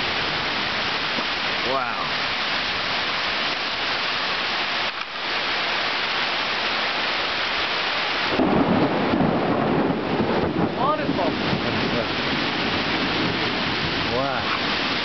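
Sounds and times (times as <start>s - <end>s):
heavy rain on foliage: 0.0s - 15.0s.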